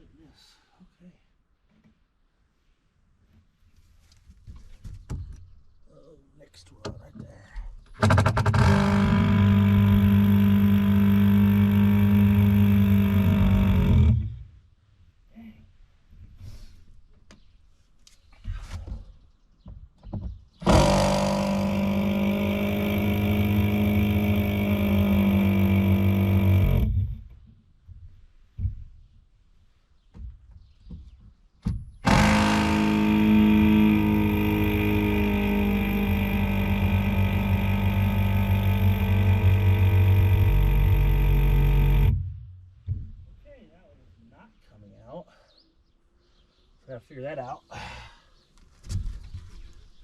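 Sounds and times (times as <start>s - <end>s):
power driver motor whine: 8.0s - 14.4s, 20.6s - 27.2s, 32.0s - 42.2s.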